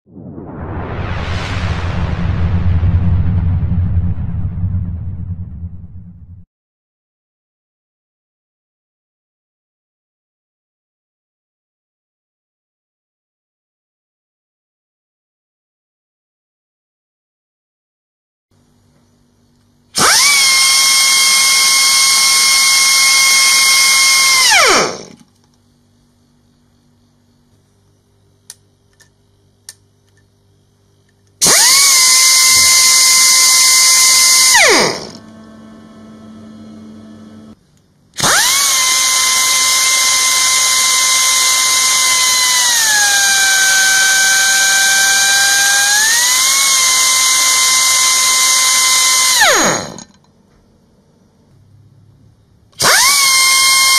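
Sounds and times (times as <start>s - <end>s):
rush of exhaust air: 0.1s - 6.4s
pneumatic grinder whining: 20.0s - 25.3s, 31.4s - 37.6s, 38.2s - 50.2s, 52.8s - 53.9s.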